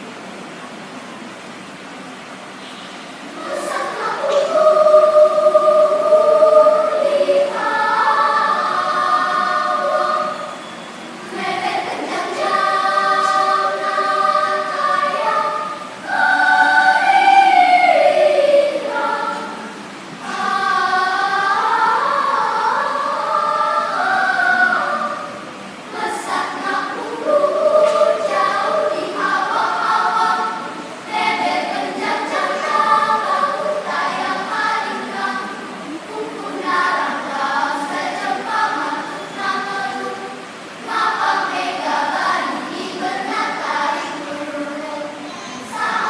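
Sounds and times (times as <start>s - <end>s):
children's choir singing: 2.5s - 46.0s.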